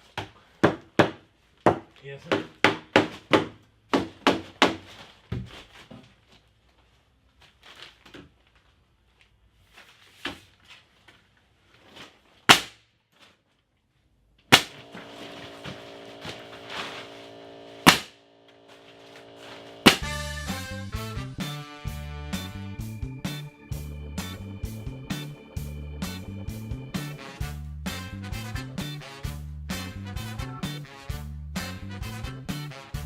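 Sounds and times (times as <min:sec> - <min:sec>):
nail gun firing: 0:14.5 - 0:15.0, 0:17.8 - 0:18.2, 0:19.8 - 0:20.1
steady hum: 0:14.5 - 0:21.2.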